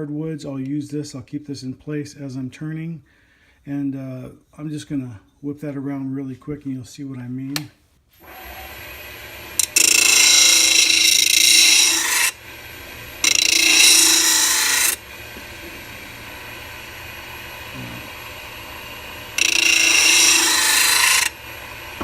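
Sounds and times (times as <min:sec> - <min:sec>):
lathe motor humming: 0:08.2 - 0:22.0
tool rasping on sanding disc: 0:08.2 - 0:22.0.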